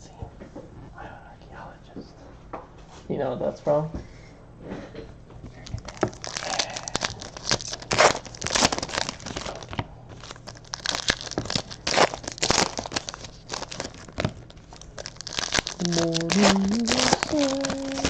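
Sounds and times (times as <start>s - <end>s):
foil wrappers tearing and crinkling: 5.6s - 18.0s.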